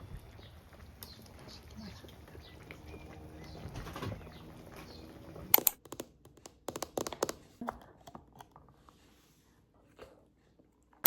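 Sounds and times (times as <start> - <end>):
low background hum: 0.0 - 5.8
small hard objects clicking: 5.5 - 7.4.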